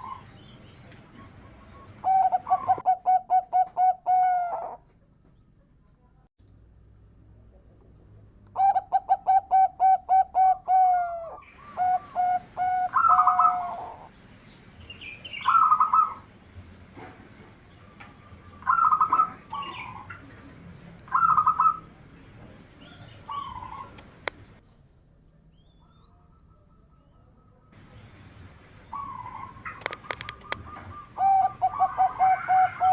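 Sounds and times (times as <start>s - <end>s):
dove cooing: 1.0s - 4.8s, 8.6s - 14.1s, 15.3s - 16.3s, 17.8s - 20.4s, 21.1s - 22.0s, 22.8s - 24.3s, 28.8s - 32.9s.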